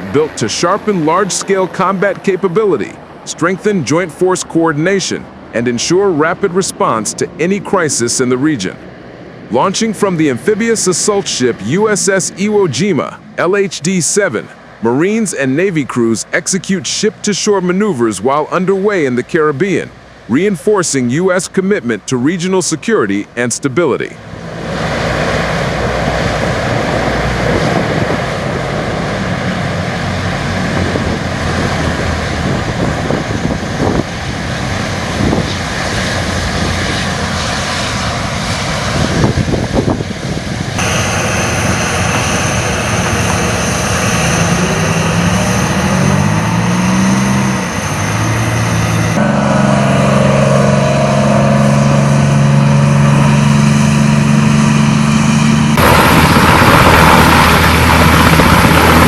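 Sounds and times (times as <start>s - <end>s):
military aircraft engines and rotors: 0.0s - 59.0s
low drone with hum tones: 40.8s - 59.0s.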